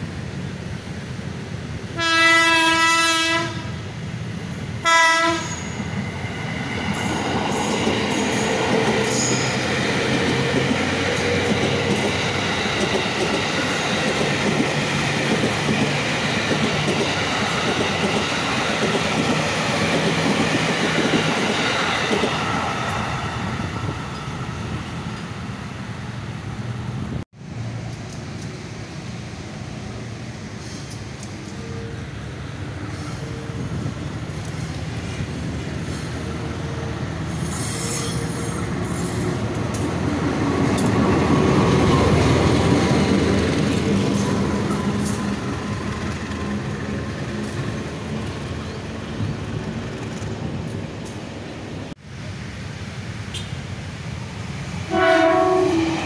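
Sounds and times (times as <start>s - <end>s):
train horn blasts: 2.0s - 3.8s, 4.8s - 5.8s, 54.9s - 56.0s
train wheels clattering over rails: 6.7s - 23.0s.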